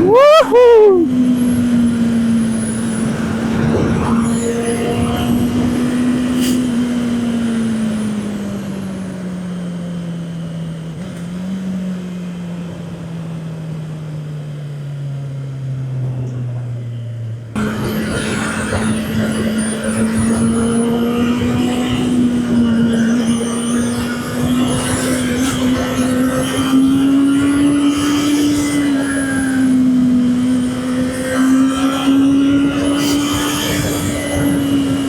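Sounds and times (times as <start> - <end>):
wind and road rush: 0.0 - 13.8, 15.1 - 35.0
motorcycle engine: 0.0 - 35.0.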